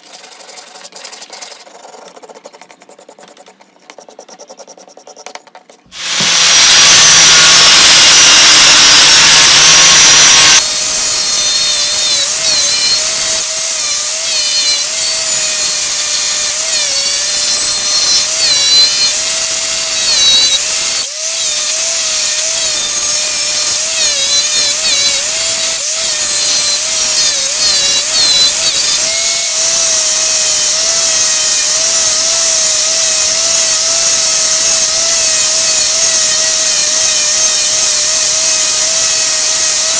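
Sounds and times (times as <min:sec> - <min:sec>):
electric power tool running: 0:06.0 - 0:15.8.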